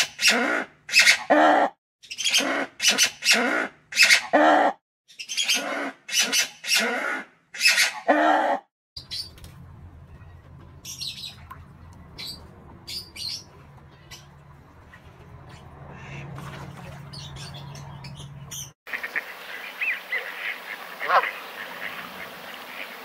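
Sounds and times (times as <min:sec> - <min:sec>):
faint low hum: 0:09.0 - 0:18.6
high bird chirps: 0:10.8 - 0:11.5
harsh bird calls: 0:10.8 - 0:23.0.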